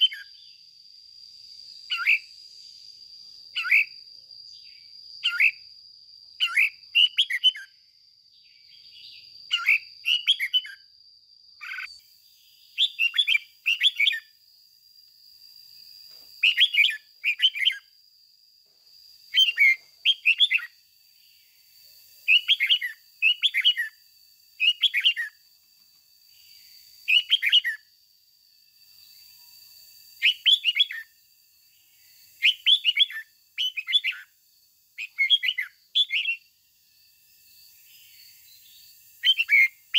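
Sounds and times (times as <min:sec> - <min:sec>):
bird singing short phrases: 0:00.0 - 0:00.6, 0:01.9 - 0:02.3, 0:03.6 - 0:05.6, 0:06.4 - 0:10.8, 0:11.6 - 0:14.3, 0:16.4 - 0:17.9, 0:19.3 - 0:20.8, 0:22.3 - 0:24.0, 0:24.6 - 0:25.4, 0:27.1 - 0:27.8, 0:30.2 - 0:31.1, 0:32.4 - 0:34.3, 0:35.0 - 0:36.4, 0:38.6 - 0:39.8.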